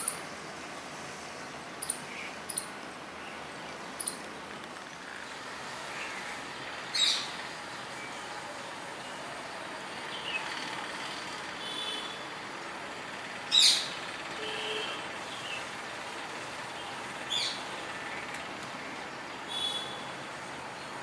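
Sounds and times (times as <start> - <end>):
steady background hiss: 0.0 - 21.0
birds chirping and calling: 6.9 - 7.4, 13.5 - 14.2, 16.8 - 18.5.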